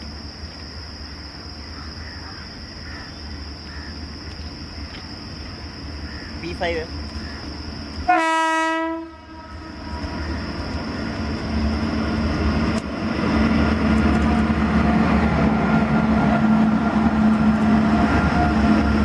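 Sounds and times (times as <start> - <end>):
locomotive horn blast: 8.1 - 10.2
locomotive running noise: 9.4 - 19.0.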